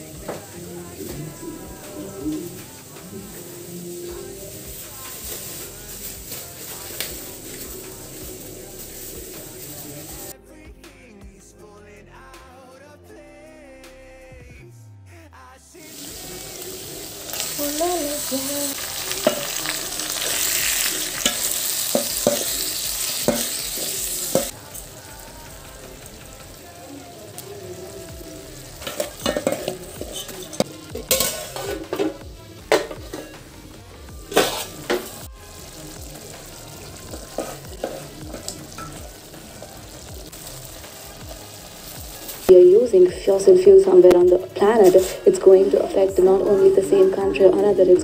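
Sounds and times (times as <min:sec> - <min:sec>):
vegetables sizzling in a pan: 0:00.0 - 0:10.3, 0:15.8 - 0:42.6
utensil knocking against pan: 0:21.2 - 0:22.6.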